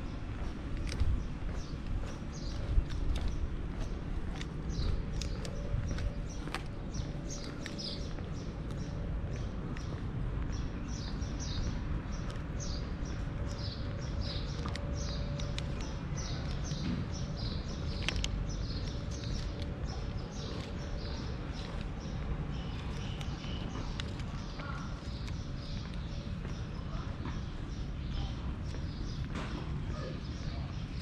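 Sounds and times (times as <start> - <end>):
small birds chirping: 0.0 - 31.0
steady low rumble: 0.0 - 31.0
sharp ticks: 12.1 - 26.6.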